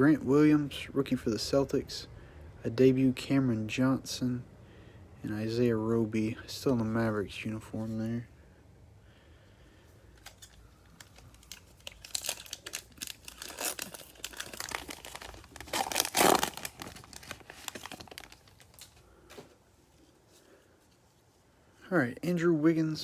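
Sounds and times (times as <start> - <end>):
wrapper tearing and crinkling: 10.2 - 19.0.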